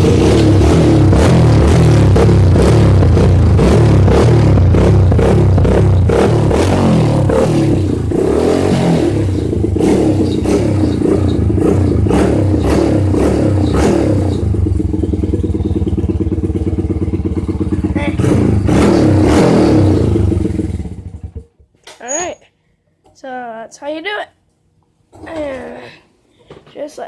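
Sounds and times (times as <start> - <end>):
dirt bike engine revving: 0.0 - 21.5.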